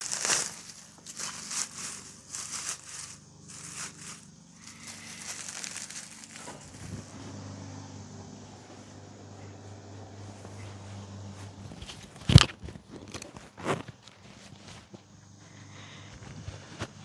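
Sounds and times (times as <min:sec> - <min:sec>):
dry material crumpling: 0:00.0 - 0:07.1, 0:11.8 - 0:15.0
low steady hum: 0:00.0 - 0:13.2.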